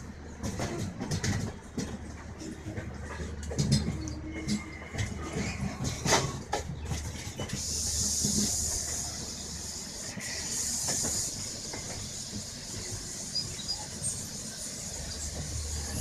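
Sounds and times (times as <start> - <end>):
train low rumble: 0.0 - 16.0
rushing air hiss: 7.5 - 16.0.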